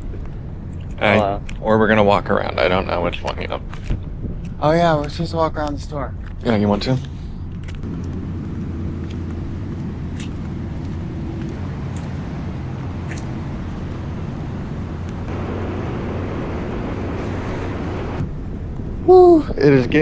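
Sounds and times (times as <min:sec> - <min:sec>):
vehicle engines idling: 0:00.0 - 0:18.8
broad rushing noise: 0:07.0 - 0:20.0.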